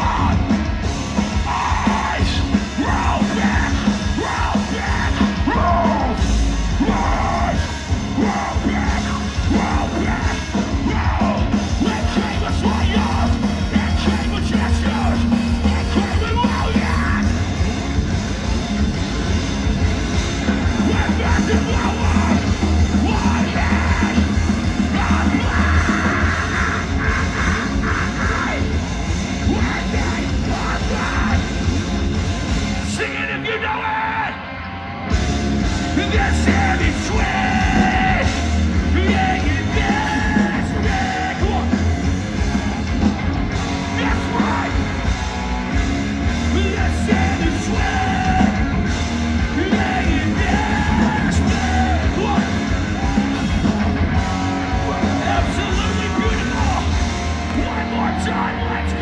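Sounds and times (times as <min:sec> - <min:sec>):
screamed vocals: 0:00.0 - 0:00.5, 0:01.3 - 0:17.4, 0:20.6 - 0:31.7, 0:32.8 - 0:35.0, 0:35.9 - 0:45.9, 0:46.5 - 0:59.0
bass and drums: 0:00.0 - 0:59.0
distorted guitars: 0:00.0 - 0:59.0.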